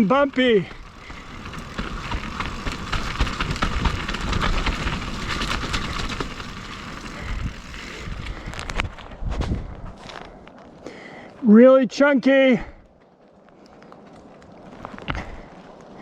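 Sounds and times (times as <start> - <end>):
bike rattling and clattering: 0.0 - 10.3
tyres crunching over rock: 0.0 - 10.8.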